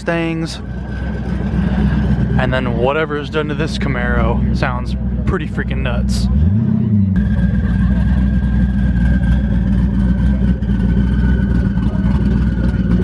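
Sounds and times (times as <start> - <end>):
loud car engine idling: 0.0 - 13.0
high whine: 7.2 - 13.0.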